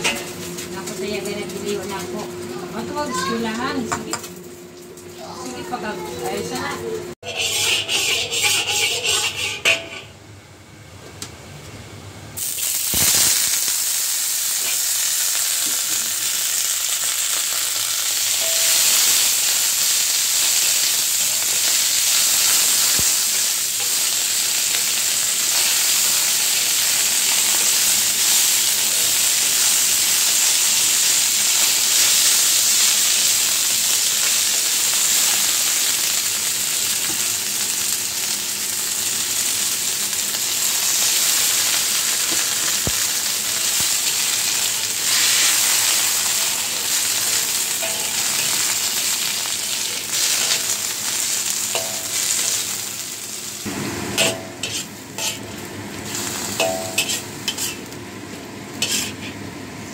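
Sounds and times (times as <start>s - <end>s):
chives sizzling in hot oil: 7.2s - 9.6s, 12.4s - 59.9s
metal spatula stir-frying: 7.2s - 10.1s, 16.8s - 35.8s, 40.8s - 53.5s, 54.2s - 58.0s, 58.8s - 59.4s.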